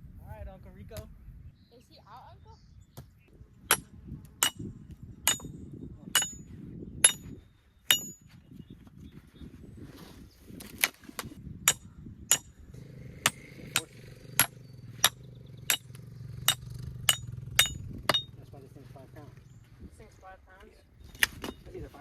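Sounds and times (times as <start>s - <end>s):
hammer striking metal: 3.7s - 4.7s, 5.3s - 5.6s, 6.2s - 8.2s, 11.7s - 12.5s, 13.2s - 18.4s.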